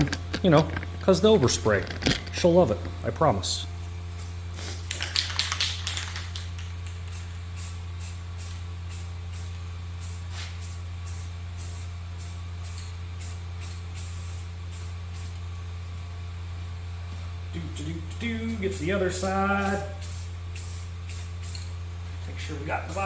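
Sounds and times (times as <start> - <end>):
steady low hum: 0.0 - 23.0
aerosol spray can hissing: 7.0 - 15.4, 18.7 - 21.7.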